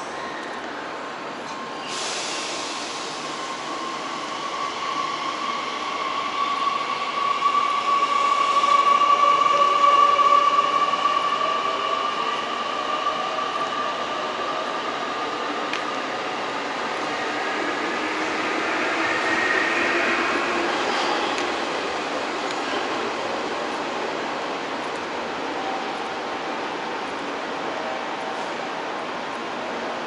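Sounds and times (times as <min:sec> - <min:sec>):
hiss: 0:01.8 - 0:04.3.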